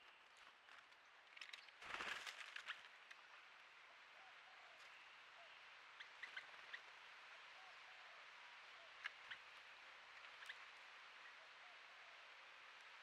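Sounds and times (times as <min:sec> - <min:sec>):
faint bird chirps: 0:04.1 - 0:09.5.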